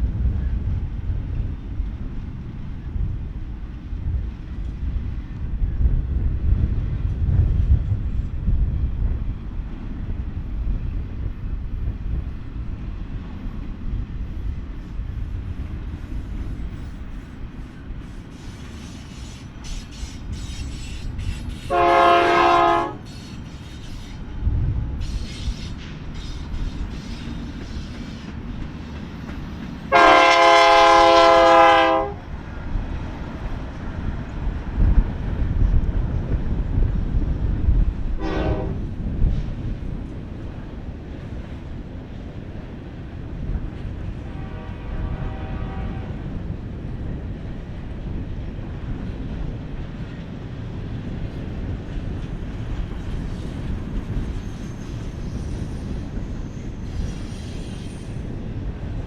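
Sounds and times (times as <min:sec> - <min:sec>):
freight train rumbling and clacking: 0:00.0 - 0:59.0
locomotive air horn: 0:21.6 - 0:23.2, 0:29.9 - 0:32.2, 0:38.2 - 0:38.8, 0:44.2 - 0:46.3.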